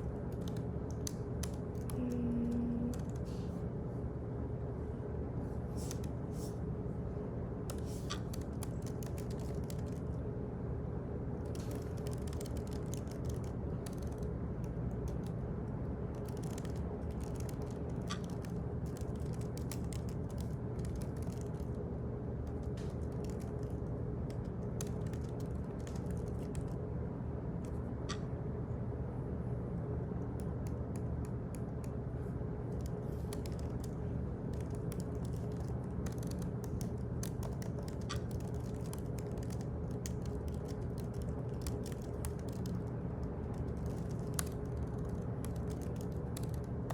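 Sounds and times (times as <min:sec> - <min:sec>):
ventilation hum: 0:00.0 - 0:46.9
keyboard typing clicks: 0:07.7 - 0:10.0, 0:11.5 - 0:14.3, 0:16.1 - 0:21.7, 0:22.4 - 0:26.8, 0:32.7 - 0:46.9.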